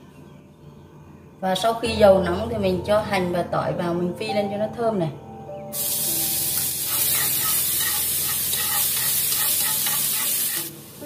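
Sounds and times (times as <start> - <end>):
shallots and garlic sizzling in oil: 5.7 - 11.0.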